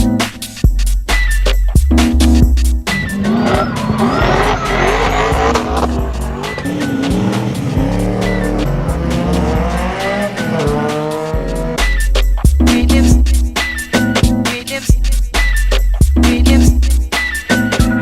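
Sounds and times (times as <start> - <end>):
car engine revving: 2.2 - 12.1
tyres squealing: 2.9 - 10.8.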